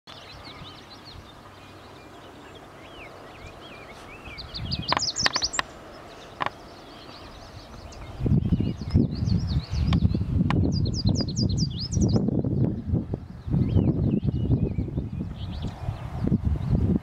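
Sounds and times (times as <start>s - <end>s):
songbirds chirping and singing: 0.1s - 17.0s
sharp high bird calls: 1.7s - 10.0s.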